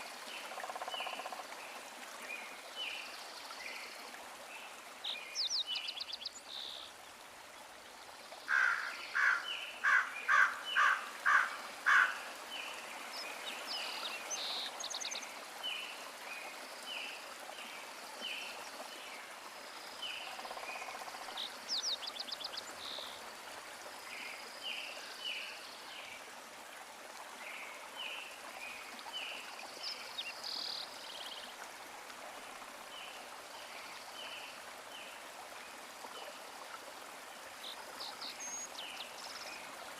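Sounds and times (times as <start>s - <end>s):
birds chirping and calling: 8.5s - 12.2s.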